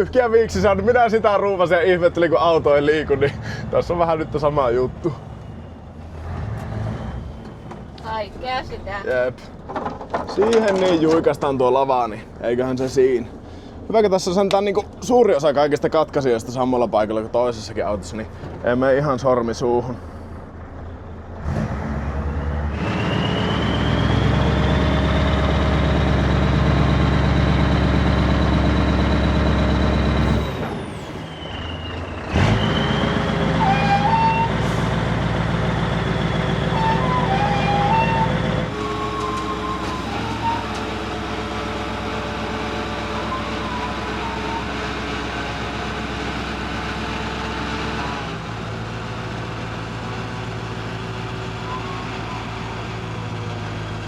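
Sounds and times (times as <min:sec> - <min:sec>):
diesel truck engine running: 0:00.0 - 0:54.0
hydraulic pump whine: 0:22.7 - 0:48.4.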